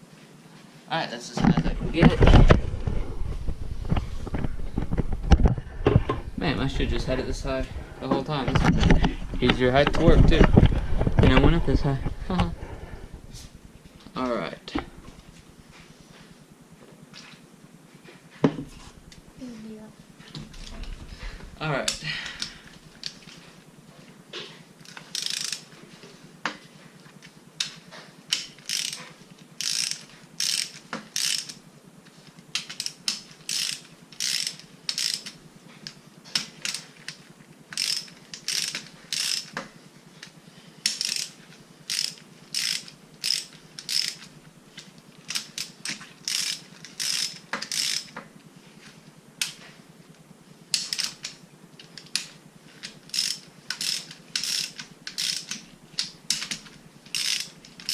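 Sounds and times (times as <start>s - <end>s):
ratchet wrench clicking: 24.8s - 25.7s, 27.6s - 31.6s, 32.5s - 39.6s, 40.2s - 44.3s, 45.2s - 48.2s, 50.7s - 57.9s.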